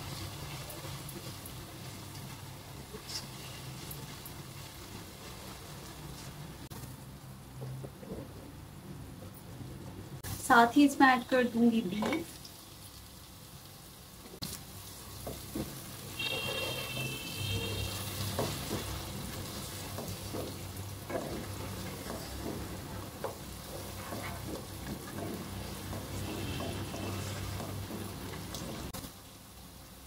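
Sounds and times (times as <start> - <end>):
meat and onions sizzling in oil: 0.0 - 8.6, 10.0 - 30.0
spatula knocking and scraping pot: 15.2 - 29.0.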